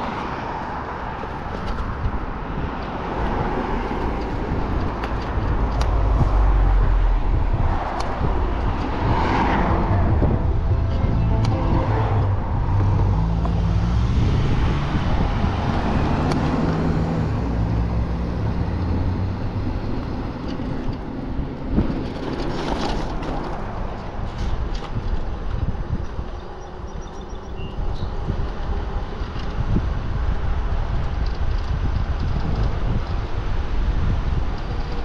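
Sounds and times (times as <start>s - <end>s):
cars going by: 0.0s - 35.0s
low traffic rumble: 0.0s - 35.0s.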